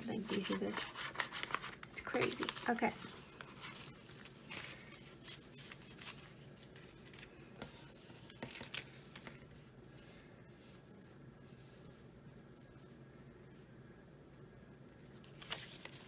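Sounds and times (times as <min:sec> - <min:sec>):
paper banknotes rustling: 0:00.0 - 0:10.8, 0:15.1 - 0:16.0.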